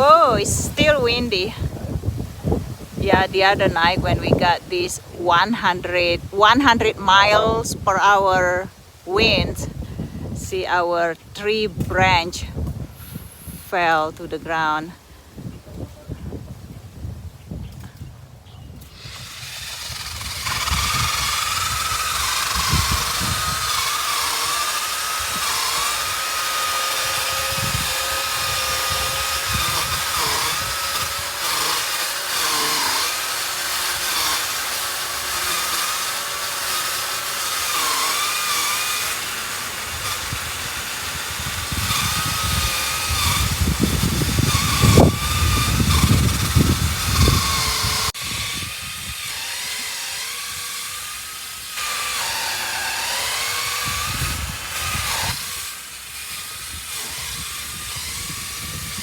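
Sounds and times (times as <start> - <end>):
chainsaw cutting branches: 0.0 - 14.9, 18.7 - 59.0
wind rumbling on microphone: 0.0 - 24.0, 27.0 - 31.4, 39.9 - 49.8, 53.2 - 55.7, 56.3 - 59.0.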